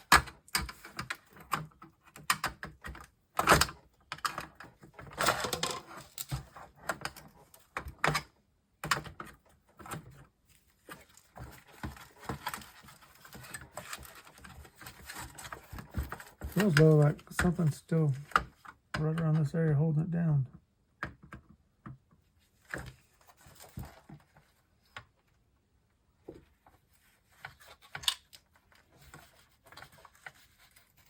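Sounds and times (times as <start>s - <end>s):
tools rattling on monitor chassis: 5.0s - 6.4s.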